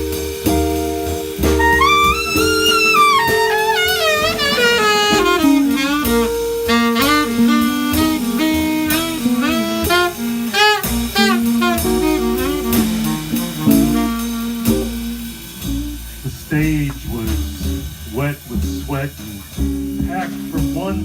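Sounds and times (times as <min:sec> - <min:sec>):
bass notes: 0:00.0 - 0:21.0
drums: 0:00.0 - 0:21.0
saxophone runs: 0:00.1 - 0:19.0.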